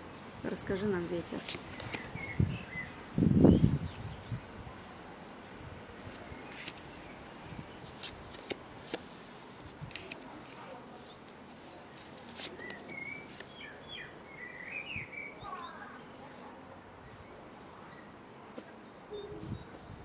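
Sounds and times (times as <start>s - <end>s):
small birds chirping: 0.0s - 9.1s, 10.0s - 20.0s
wind hiss: 1.4s - 4.8s.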